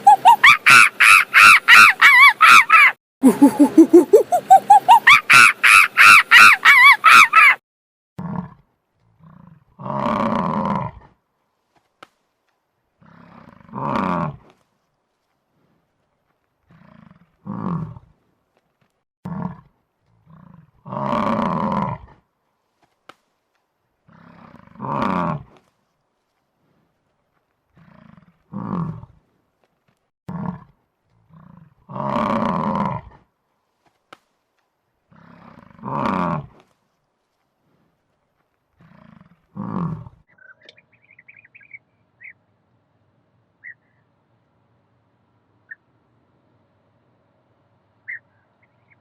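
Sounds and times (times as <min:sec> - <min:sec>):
animal grunts: 0:08.2 - 0:11.2, 0:13.0 - 0:14.5, 0:16.6 - 0:18.2, 0:19.2 - 0:22.2, 0:24.1 - 0:25.6, 0:27.7 - 0:29.2, 0:30.3 - 0:33.3, 0:35.1 - 0:36.6, 0:38.8 - 0:40.2.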